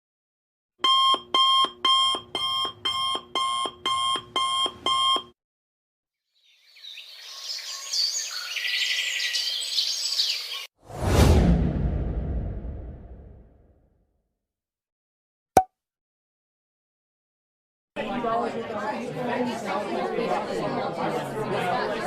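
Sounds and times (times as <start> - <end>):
alarm clock beeping: 0.8 - 5.3.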